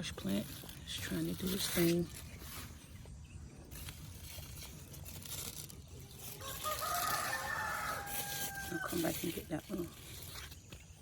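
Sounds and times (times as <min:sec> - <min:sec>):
rooster crowing: 0:06.4 - 0:09.0.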